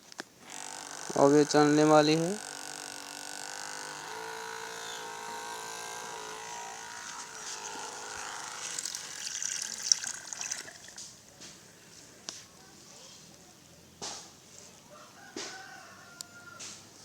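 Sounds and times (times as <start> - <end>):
small electric motor whine: 0.4 - 11.0.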